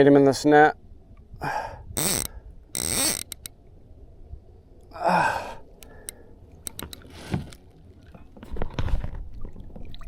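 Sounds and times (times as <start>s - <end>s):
man sighing heavily: 1.4s - 1.9s, 4.9s - 6.0s
light clicks and knocks: 6.0s - 7.6s.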